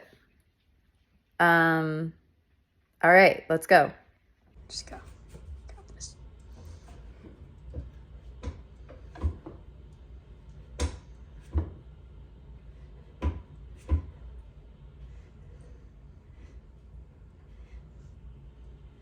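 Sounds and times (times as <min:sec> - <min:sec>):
pull-up bar knocking: 0:07.0 - 0:12.0.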